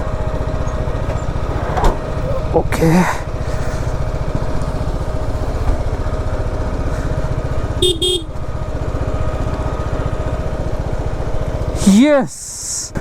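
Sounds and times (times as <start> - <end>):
motorcycle engine running: 0.0 - 13.0
horn short beeps: 7.8 - 8.3.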